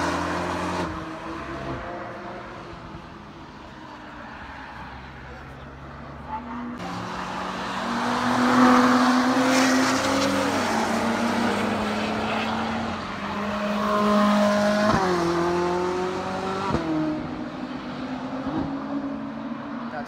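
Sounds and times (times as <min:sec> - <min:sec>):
car revving with upshifts: 0:00.0 - 0:02.8, 0:06.7 - 0:19.6
race cars accelerating past: 0:06.4 - 0:20.0.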